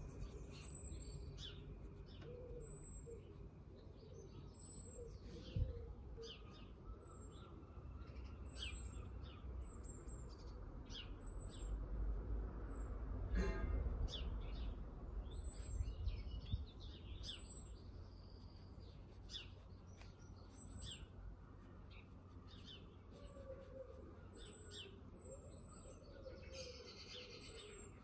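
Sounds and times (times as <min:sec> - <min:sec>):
faint low hum: 0:00.0 - 0:28.0
birds chirping: 0:12.4 - 0:28.0.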